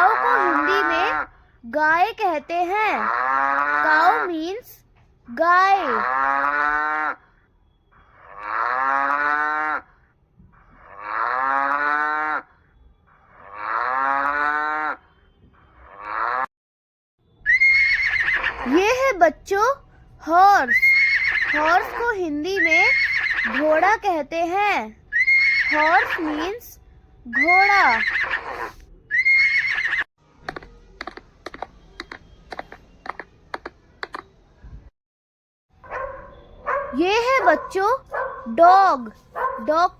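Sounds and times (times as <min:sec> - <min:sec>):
horse whinnying: 0:17.5 - 0:18.8, 0:20.8 - 0:21.8, 0:22.9 - 0:23.6, 0:25.1 - 0:26.3, 0:27.4 - 0:30.1
hoofbeats on hard ground: 0:30.5 - 0:34.2.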